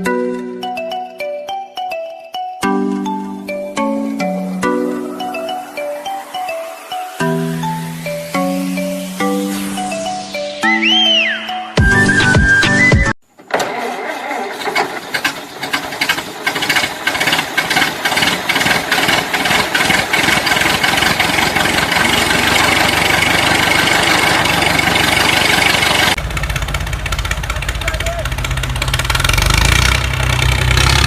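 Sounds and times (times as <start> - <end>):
small motor clattering: 13.5 - 26.2.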